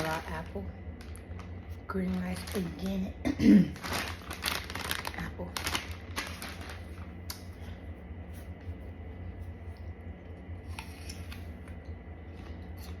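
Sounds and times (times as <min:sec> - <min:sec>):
steady low hum: 0:00.0 - 0:13.0
person chewing crisp apple: 0:10.6 - 0:13.0.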